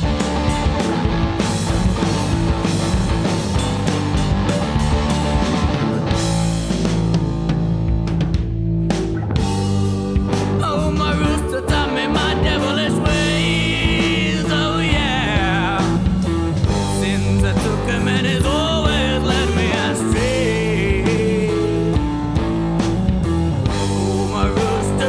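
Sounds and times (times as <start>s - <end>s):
lead guitar with bent notes: 0.0s - 25.0s
rock band playing: 0.0s - 25.0s.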